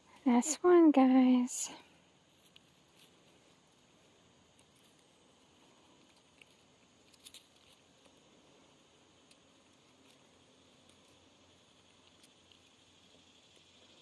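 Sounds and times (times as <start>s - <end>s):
faint background hiss: 0.0s - 14.0s.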